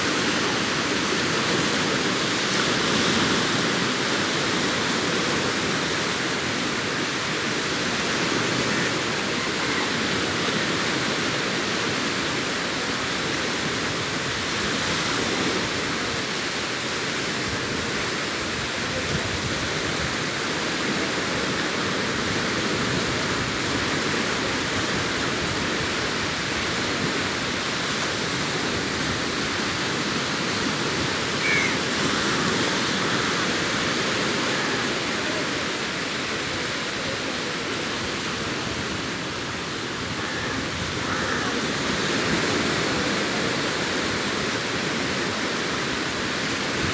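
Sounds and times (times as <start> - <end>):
sea waves washing on shore: 0.0 - 46.9.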